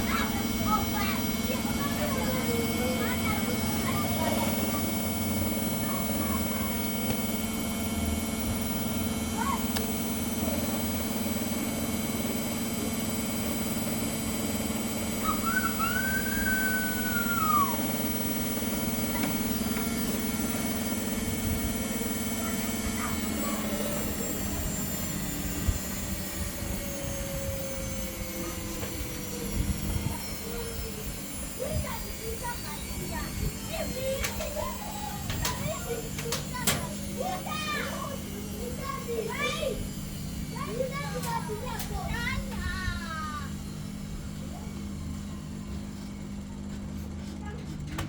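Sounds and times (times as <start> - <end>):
washing machine spinning: 0.0 - 48.0
whistle-like sound: 15.2 - 17.8.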